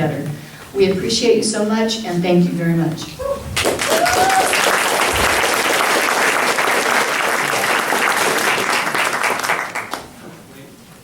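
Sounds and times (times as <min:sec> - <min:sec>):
congregation applauding: 0:03.6 - 0:10.2.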